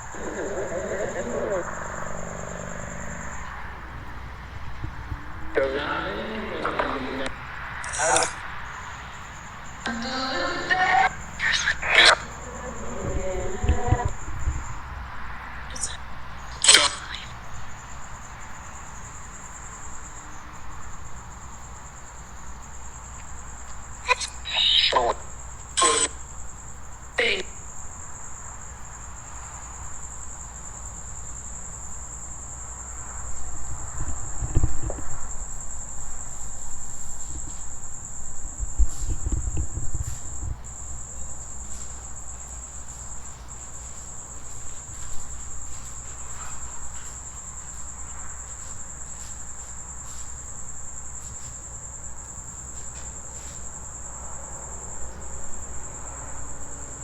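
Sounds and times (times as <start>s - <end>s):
crickets trilling: 0.0s - 57.0s
thumps on microphone: 34.0s - 35.4s, 38.6s - 40.6s.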